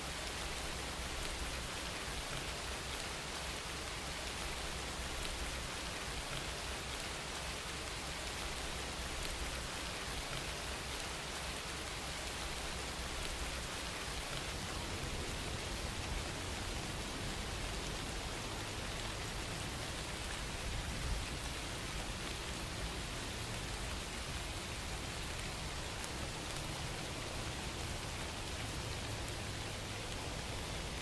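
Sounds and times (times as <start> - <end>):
faint raindrop ticks: 0.0 - 31.0
rain falling: 0.0 - 31.0.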